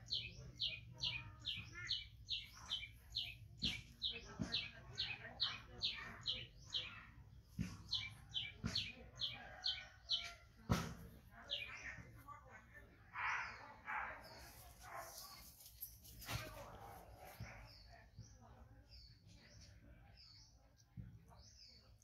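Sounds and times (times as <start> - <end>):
bird chirping: 0.0 - 10.4.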